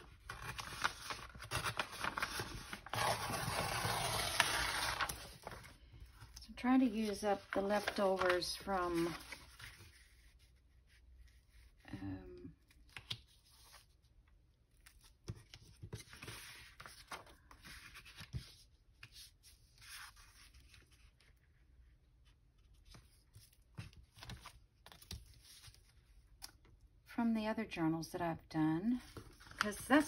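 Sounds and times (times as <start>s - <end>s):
paper rustling and tearing: 0.0s - 5.8s, 6.7s - 10.2s.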